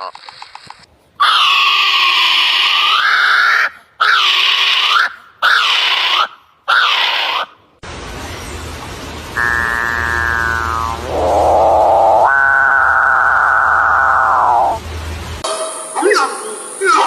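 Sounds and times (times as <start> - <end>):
bird calls bending upward: 9.4 - 14.8
falling tone: 9.4 - 14.8.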